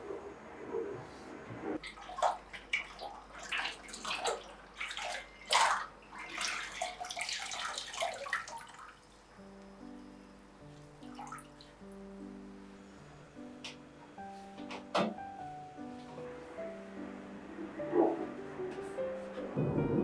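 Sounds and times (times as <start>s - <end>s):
water sloshing and splashing: 1.8s - 9.2s
background music with held notes: 9.1s - 20.0s.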